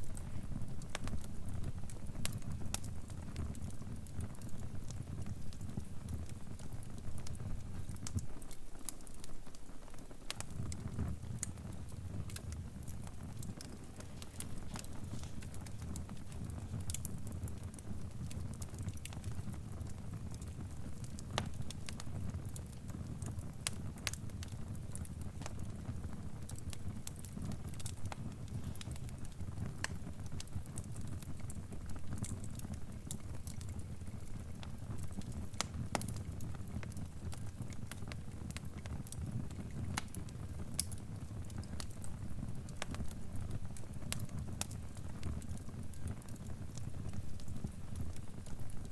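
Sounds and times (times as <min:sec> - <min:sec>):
fire crackling: 0:00.0 - 0:48.9
sharp pops and snaps: 0:20.4 - 0:22.1, 0:26.7 - 0:42.1.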